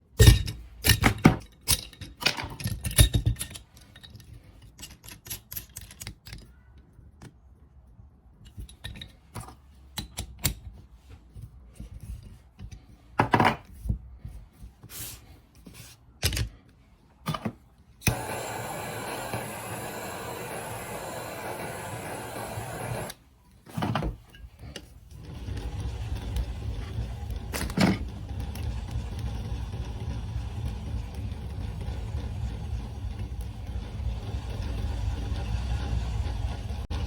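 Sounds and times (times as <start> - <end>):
steady noise: 18.1 - 23.1.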